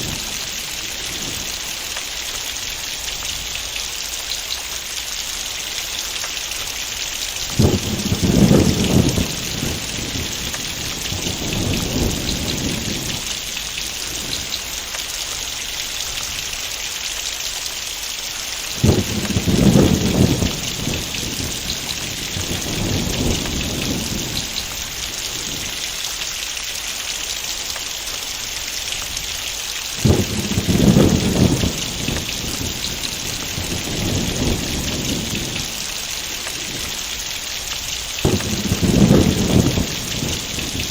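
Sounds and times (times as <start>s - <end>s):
thunder rumbling: 0.0s - 3.7s, 6.6s - 16.6s, 18.5s - 26.0s, 29.9s - 40.9s
heavy rain falling: 0.0s - 40.9s.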